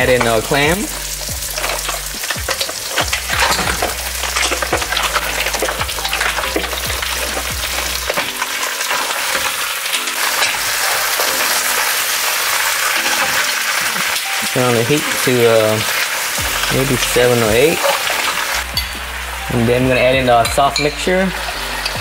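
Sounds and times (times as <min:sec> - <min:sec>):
shells and utensils clacking on pan: 0:00.0 - 0:19.5
clams sizzling in hot oil: 0:00.0 - 0:22.0.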